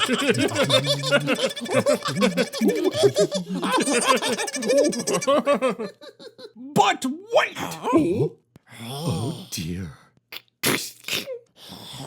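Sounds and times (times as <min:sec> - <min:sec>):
short wordless vocal sounds: 0:00.0 - 0:03.7.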